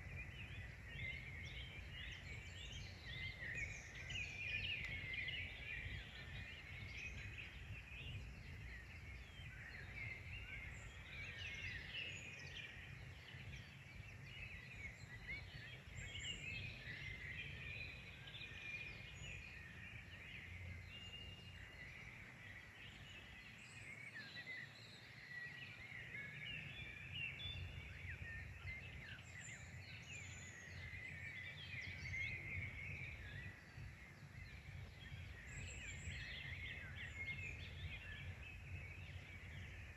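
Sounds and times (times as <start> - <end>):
low wind rumble: 0.0 - 11.9, 26.6 - 39.9
small birds chirping: 0.0 - 39.9.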